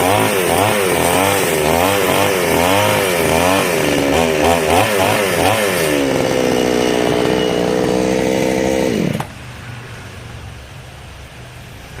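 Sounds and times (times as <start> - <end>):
chainsaw engine revving: 0.0 - 9.4.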